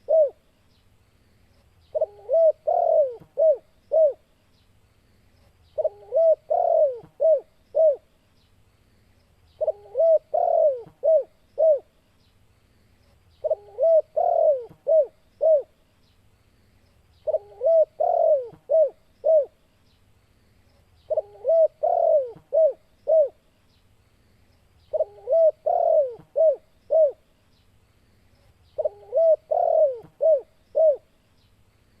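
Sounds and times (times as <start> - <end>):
dove cooing: 0.0 - 0.4, 1.9 - 4.3, 5.8 - 8.1, 9.6 - 11.9, 13.4 - 15.8, 17.2 - 19.6, 21.1 - 23.4, 24.9 - 27.2, 28.8 - 31.1.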